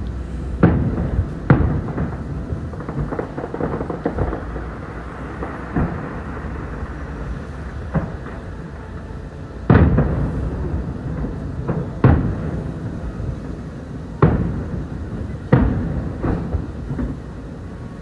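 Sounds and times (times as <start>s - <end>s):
fireworks bangs: 0.0s - 18.0s
rolling rumble: 0.0s - 18.0s
softer firework pops: 0.6s - 6.6s, 15.5s - 17.4s.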